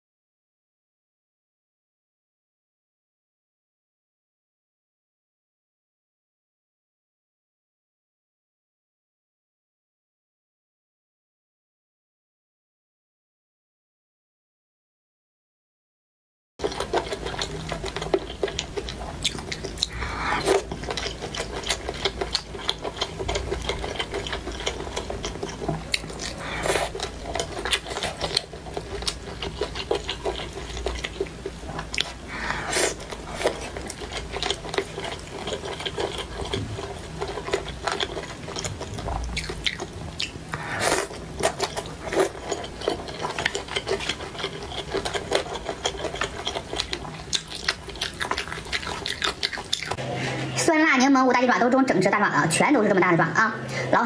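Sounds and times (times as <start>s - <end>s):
close chewing and biting: 16.6s - 50.0s.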